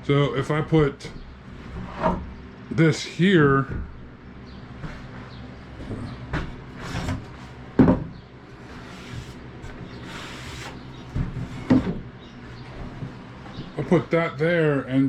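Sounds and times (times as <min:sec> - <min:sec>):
wood scraping: 0:06.8 - 0:07.6, 0:08.6 - 0:12.0
wood knocking on wood: 0:07.8 - 0:08.2.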